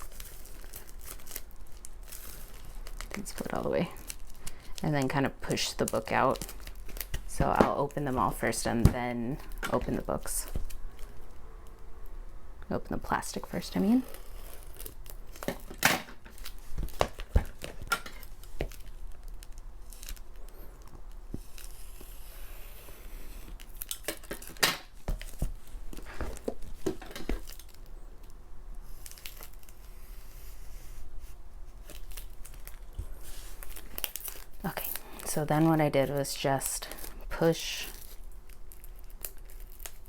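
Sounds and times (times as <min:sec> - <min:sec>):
packages clicking and tapping: 0:00.0 - 0:11.3, 0:13.9 - 0:21.7, 0:23.5 - 0:27.8
plastic shrink-wrap tearing and crinkling: 0:00.0 - 0:11.4, 0:13.1 - 0:30.0, 0:31.8 - 0:40.0.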